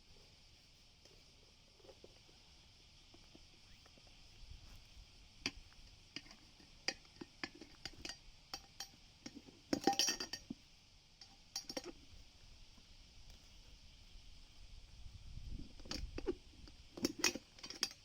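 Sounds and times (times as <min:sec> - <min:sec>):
metal tools clinking: 0:09.7 - 0:10.4, 0:17.0 - 0:18.0.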